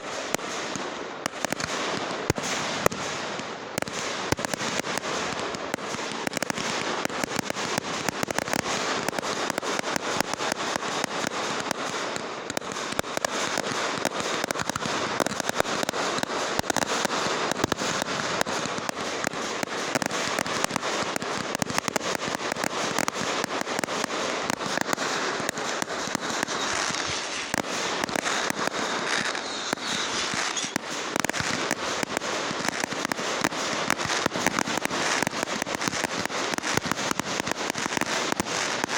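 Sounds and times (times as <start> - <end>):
fireworks crackling and popping: 0.0 - 38.9.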